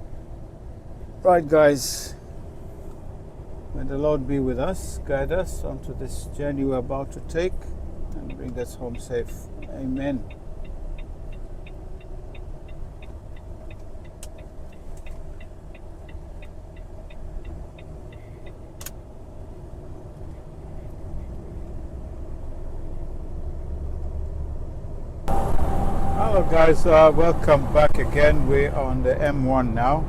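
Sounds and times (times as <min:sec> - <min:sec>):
lorry engine low rumble: 0:00.0 - 0:30.0
steady ticking: 0:08.1 - 0:18.7.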